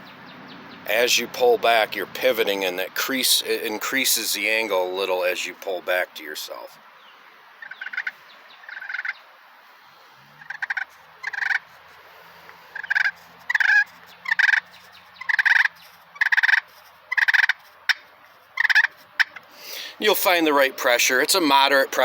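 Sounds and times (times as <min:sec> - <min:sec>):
turkey call purrs: 0:07.6 - 0:20.0.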